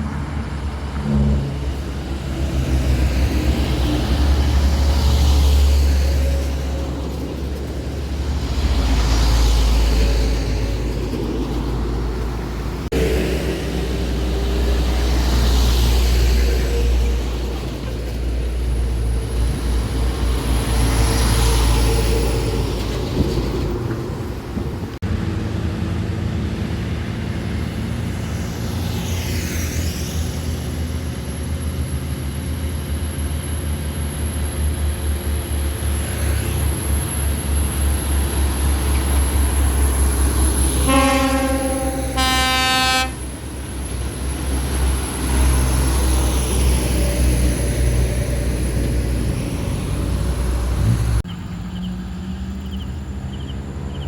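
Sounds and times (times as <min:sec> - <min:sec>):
truck horn blasts: 0:40.8 - 0:43.4.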